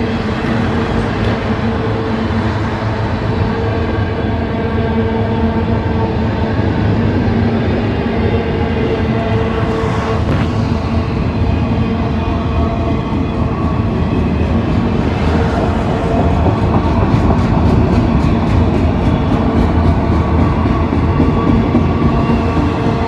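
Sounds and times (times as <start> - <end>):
train rumbling on rails: 0.0 - 23.0.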